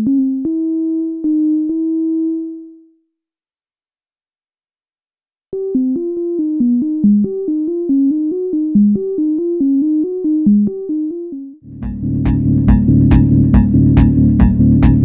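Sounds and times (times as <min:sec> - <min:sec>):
synthesizer sequenced short notes: 0:05.6 - 0:15.0
sustained synth tone: 0:10.0 - 0:15.0
drum beat: 0:11.8 - 0:15.0.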